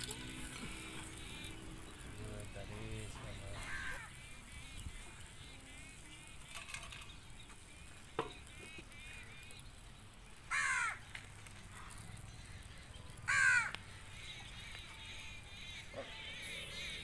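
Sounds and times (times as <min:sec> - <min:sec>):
small birds chirping: 0:00.0 - 0:17.0
crow cawing: 0:03.5 - 0:04.2, 0:10.5 - 0:11.1, 0:13.3 - 0:13.8.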